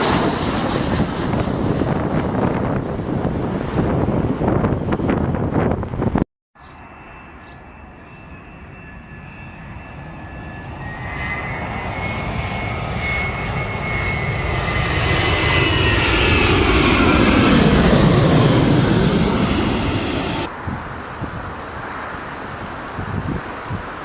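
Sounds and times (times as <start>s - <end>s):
airplane engines whining and rumbling: 0.0s - 24.0s.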